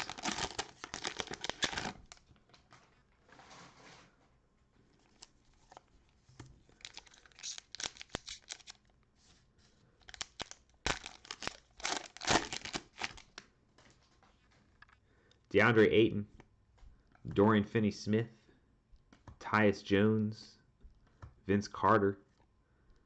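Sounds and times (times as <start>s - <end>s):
plastic wrapper tearing and crinkling: 0.0s - 2.2s, 5.0s - 5.9s, 6.7s - 8.8s, 10.0s - 13.4s.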